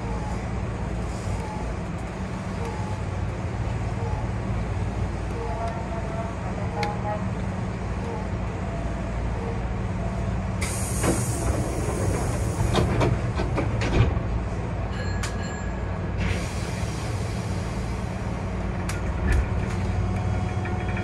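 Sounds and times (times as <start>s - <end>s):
electric train running hum: 0.0s - 21.0s
hiss: 10.6s - 12.9s
wheels clacking over rail joints: 11.0s - 14.4s, 18.7s - 21.0s.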